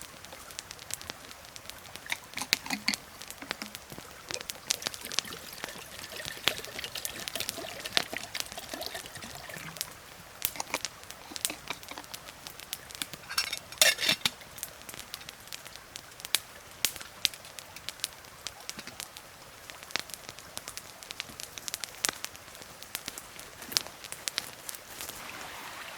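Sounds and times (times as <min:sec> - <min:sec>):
sharp crackles and clicks: 0:00.0 - 0:25.2
liquid pouring: 0:01.8 - 0:12.3, 0:25.1 - 0:25.9.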